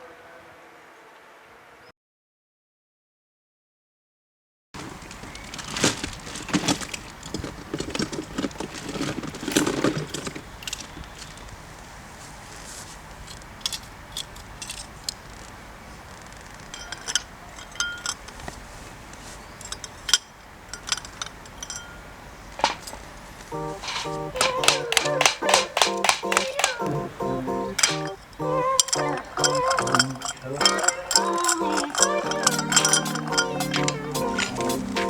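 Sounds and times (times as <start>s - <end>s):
glass ice and bar tools clinking: 19.6s - 22.0s, 27.8s - 34.8s
ringing glass tones: 23.6s - 35.0s.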